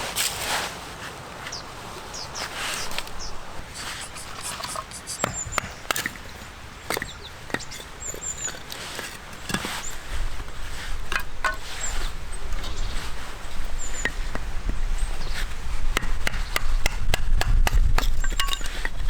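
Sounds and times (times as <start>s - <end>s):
firewood being chopped: 4.6s - 12.8s, 13.4s - 19.0s.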